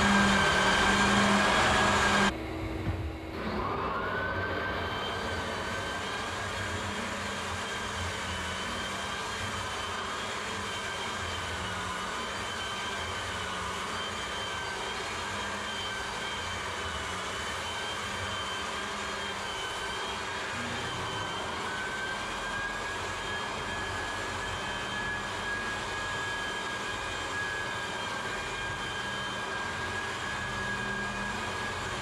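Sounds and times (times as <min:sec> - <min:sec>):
sanding noise: 0:00.0 - 0:02.3
floor sander motor whine: 0:00.0 - 0:32.0.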